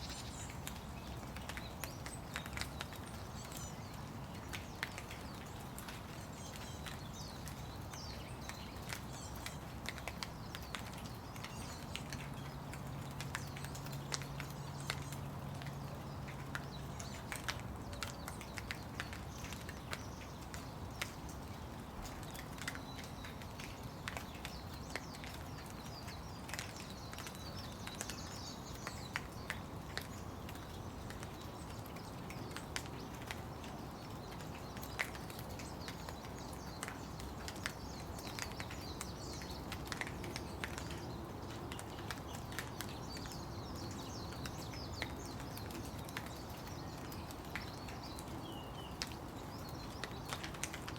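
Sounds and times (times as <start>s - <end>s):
sharp raindrops landing close: 0.0s - 50.9s
steady rain falling: 0.0s - 50.9s.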